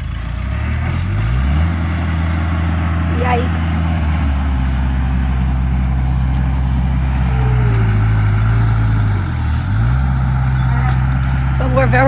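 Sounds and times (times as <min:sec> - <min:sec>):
construction machine engine running: 0:00.0 - 0:12.0.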